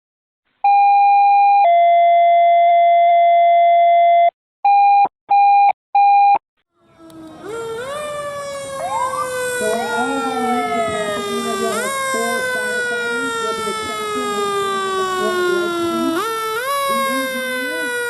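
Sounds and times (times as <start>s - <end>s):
fire truck siren winding up: 6.8s - 18.0s.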